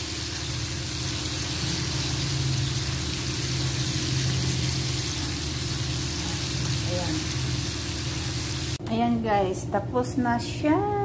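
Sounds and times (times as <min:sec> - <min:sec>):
bacon sizzling in a frying pan: 0:00.0 - 0:08.8.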